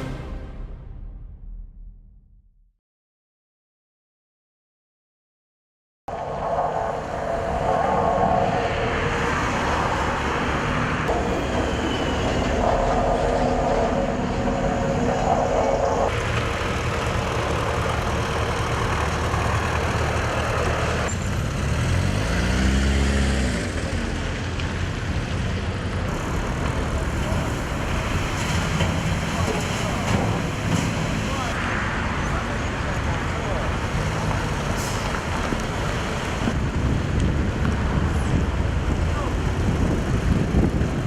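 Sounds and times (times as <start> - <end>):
heavy vehicles running: 6.1 - 41.0
engine revving: 6.9 - 24.8.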